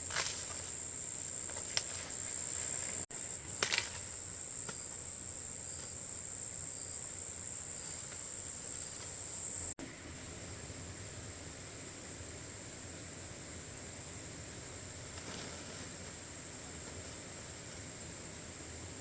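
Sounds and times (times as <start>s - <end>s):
insect chorus trilling: 0.0s - 9.8s.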